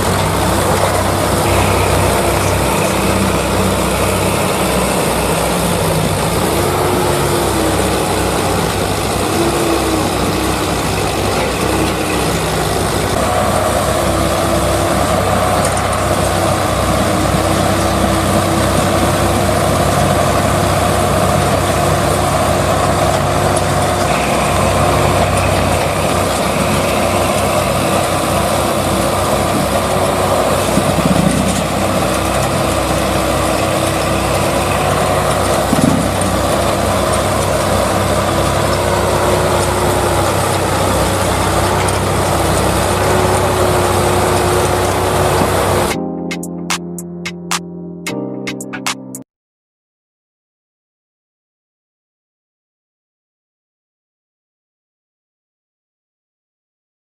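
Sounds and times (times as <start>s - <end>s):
heavy vehicle engine running: 0.0s - 46.0s.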